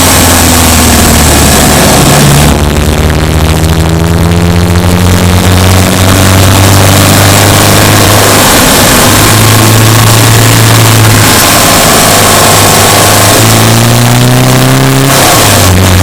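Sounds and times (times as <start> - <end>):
car engine driving: 0.0 - 16.0.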